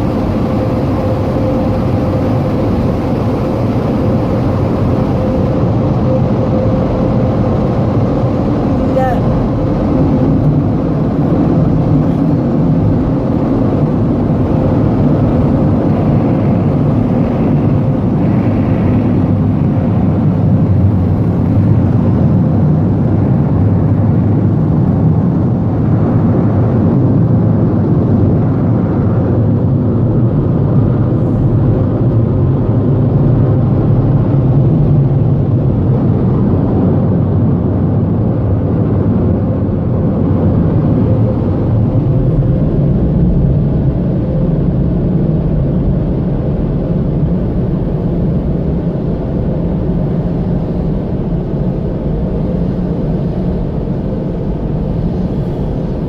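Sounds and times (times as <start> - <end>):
air-dryer blowers rushing: 0.0 - 21.9, 52.5 - 56.0
faint steady hum: 0.0 - 23.6, 38.8 - 56.0.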